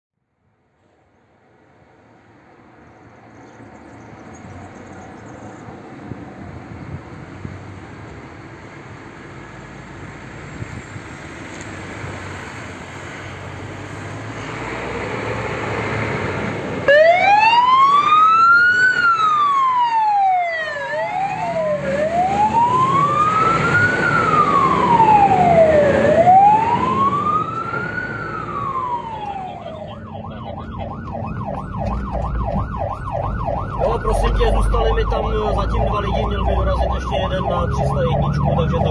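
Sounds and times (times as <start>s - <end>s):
fire engine driving: 0.7s - 38.9s
siren wailing and warbling: 16.9s - 38.9s.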